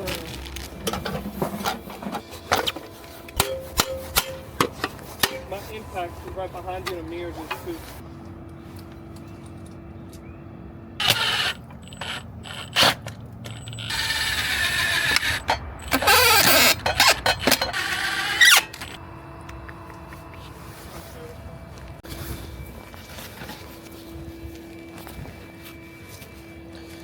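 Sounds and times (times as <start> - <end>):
impact driver running: 11.0 - 19.0.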